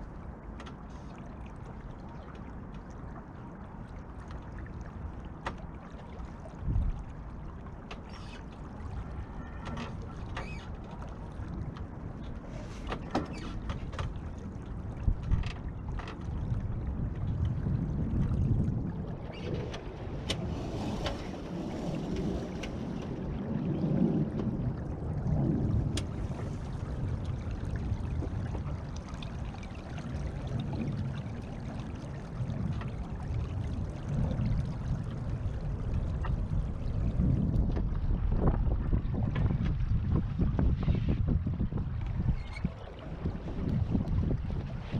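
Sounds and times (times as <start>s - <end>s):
water slapping against hull: 0.0s - 44.9s
wind buffeting microphone: 6.5s - 7.3s, 13.8s - 44.9s.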